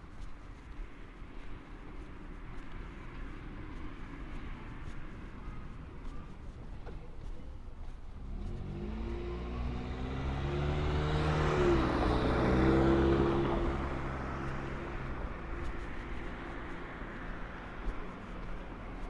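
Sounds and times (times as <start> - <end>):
car driving past: 8.2 - 19.0.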